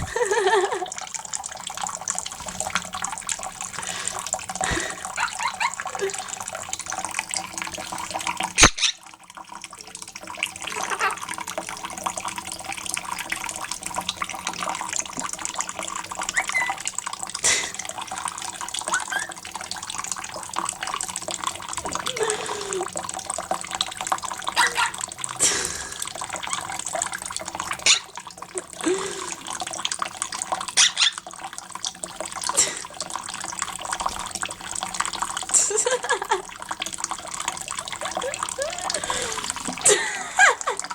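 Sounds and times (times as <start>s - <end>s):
parrot splashing in water: 0.0s - 40.9s
running water: 0.0s - 40.9s.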